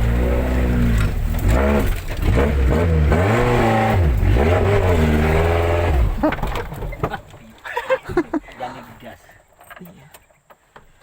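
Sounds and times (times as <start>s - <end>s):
vehicle engine revving: 0.0s - 6.6s.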